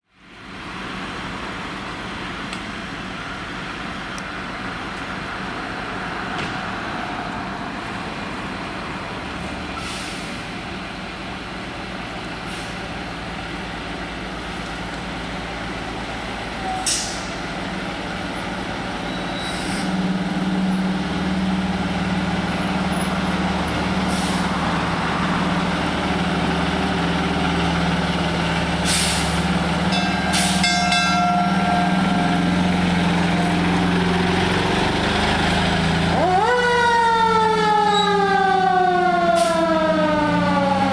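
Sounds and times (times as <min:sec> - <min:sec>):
fire truck engine running: 0:00.0 - 0:40.9
air brake hisses: 0:09.8 - 0:10.5, 0:12.5 - 0:12.8, 0:16.8 - 0:17.4, 0:19.3 - 0:20.0, 0:24.1 - 0:24.6, 0:28.8 - 0:29.4, 0:30.3 - 0:30.7.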